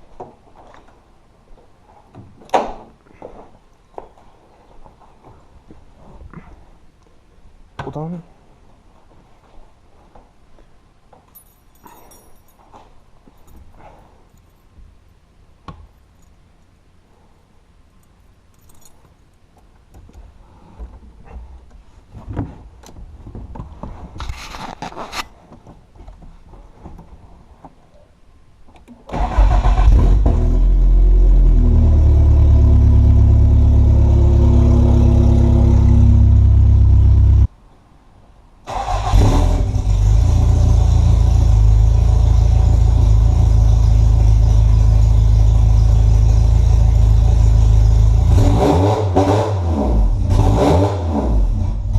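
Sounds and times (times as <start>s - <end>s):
loud car engine running: 29.9s - 37.5s, 39.6s - 49.2s.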